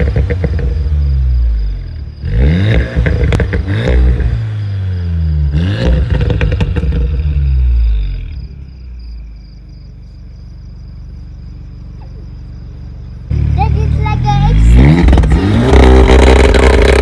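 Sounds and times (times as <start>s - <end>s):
exhaust cracks: 0.0s - 8.1s, 11.9s - 17.0s
car engine revving in blips: 0.0s - 9.0s, 10.6s - 17.0s.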